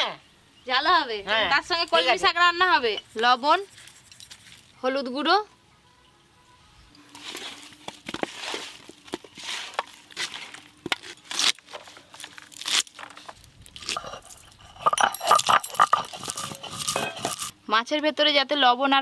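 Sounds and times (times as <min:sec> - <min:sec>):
hands rubbing and squishing fish: 0:02.9 - 0:04.8, 0:07.1 - 0:17.5
sharp clinks: 0:13.8 - 0:17.5.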